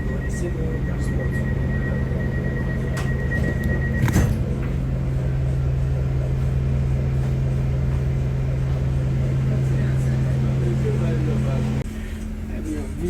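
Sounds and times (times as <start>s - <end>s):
train engine drone: 0.0s - 13.0s.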